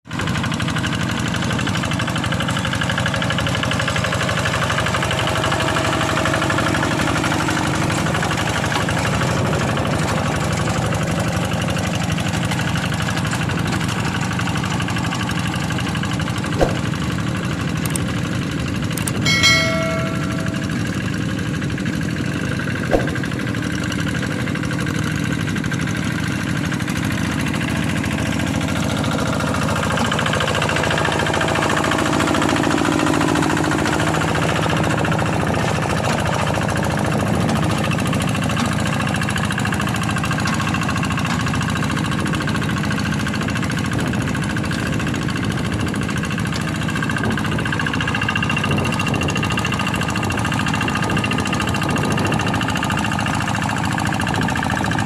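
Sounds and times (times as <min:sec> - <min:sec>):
diesel engine running: 0:00.1 - 0:55.0
sharp click: 0:22.9 - 0:23.3.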